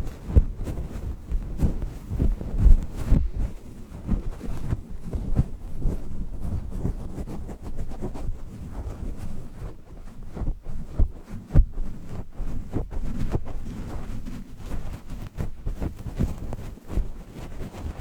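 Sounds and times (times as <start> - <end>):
soft thumps: 0.0 - 6.1
steady low rumbling noise: 0.0 - 16.4.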